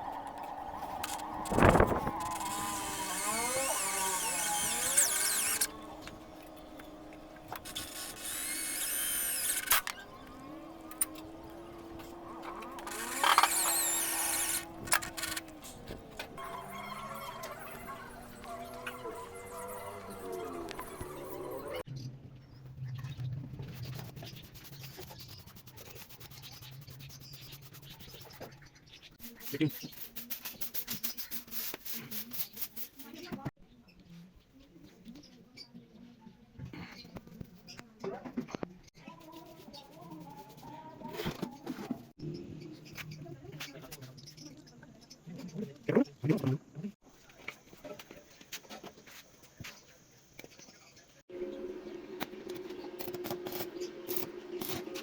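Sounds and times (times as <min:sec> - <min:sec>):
power drill whining: 0:00.0 - 0:21.8
scraping and rubbing: 0:00.4 - 0:16.5, 0:23.2 - 0:28.5, 0:29.2 - 0:33.3.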